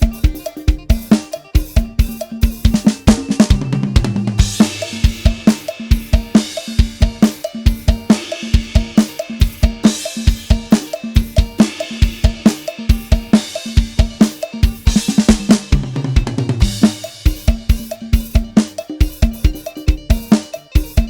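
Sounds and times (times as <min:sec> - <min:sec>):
drum kit beat: 0:00.0 - 0:21.0
tom fill: 0:00.0 - 0:21.0
cymbal crash: 0:04.2 - 0:14.2.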